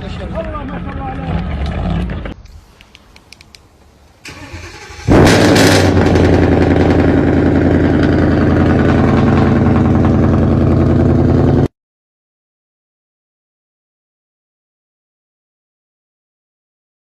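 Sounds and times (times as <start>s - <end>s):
engine running with fast pulse: 4.7s - 11.7s.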